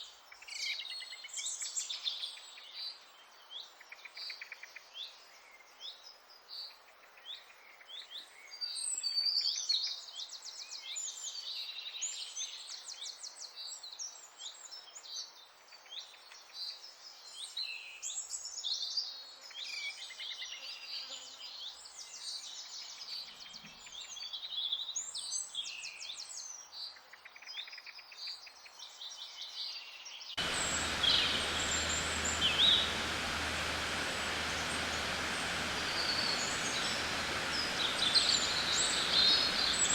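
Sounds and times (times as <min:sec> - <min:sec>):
birds chirping and trilling: 0:30.4 - 0:39.9
steady hiss with low hum: 0:30.4 - 0:39.9.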